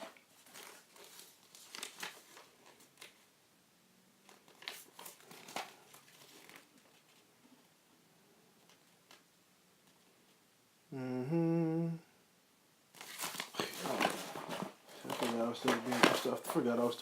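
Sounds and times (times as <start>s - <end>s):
packaging crinkling and rustling: 0.0s - 3.2s, 4.2s - 7.2s, 13.0s - 17.0s.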